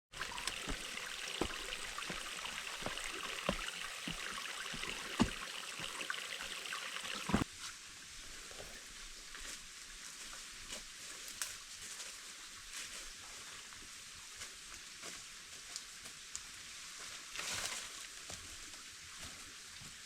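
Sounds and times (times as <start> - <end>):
running water: 0.1 - 9.6.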